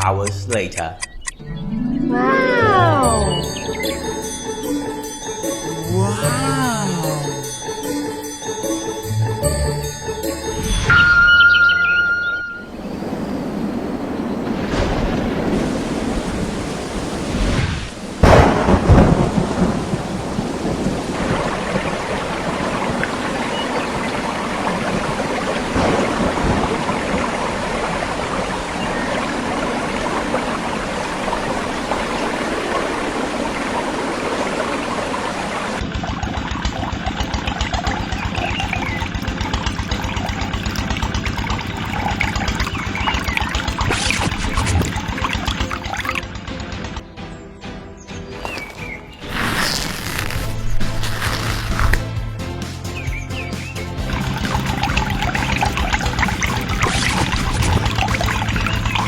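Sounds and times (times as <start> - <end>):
thunderclap and rumble: 12.9 - 33.9
heavy rain falling: 13.0 - 35.8.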